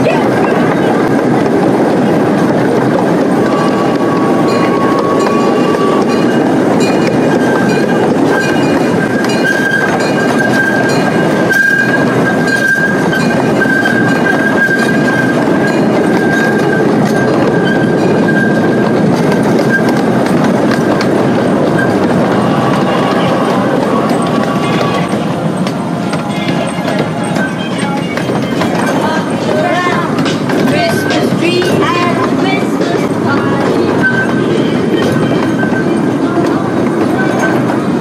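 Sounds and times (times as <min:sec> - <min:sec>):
train wheels rumbling on track: 0:00.0 - 0:38.0
high-pitched wheel squeal: 0:03.4 - 0:20.1, 0:33.6 - 0:37.7.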